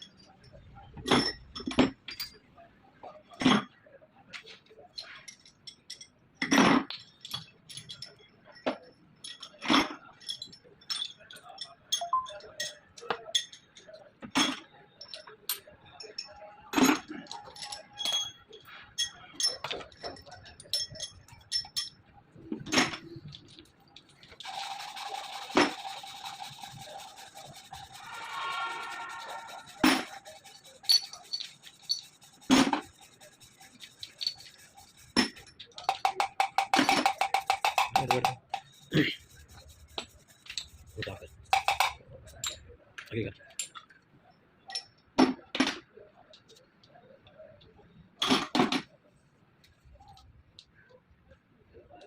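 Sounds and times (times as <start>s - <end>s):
metal tools clinking: 0.0s - 2.5s, 4.9s - 28.0s, 29.2s - 42.7s
rapid tapping on metal: 29.3s - 42.0s.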